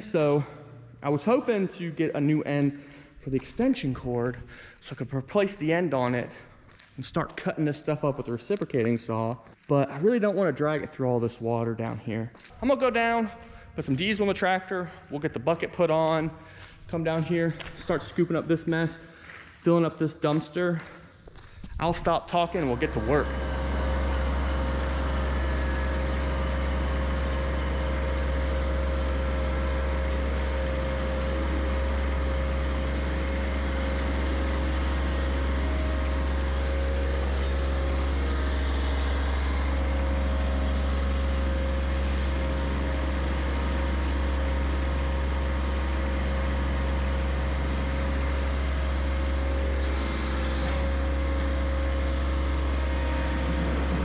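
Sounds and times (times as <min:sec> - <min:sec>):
diesel tractor engine running: 0:22.4 - 0:54.0.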